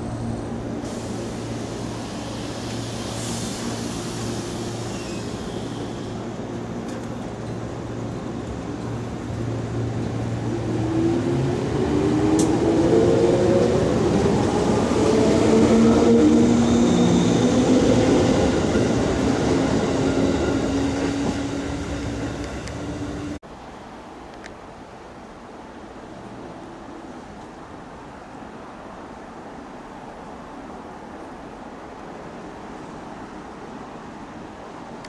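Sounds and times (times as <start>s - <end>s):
train wheels on rails: 0.0s - 23.4s.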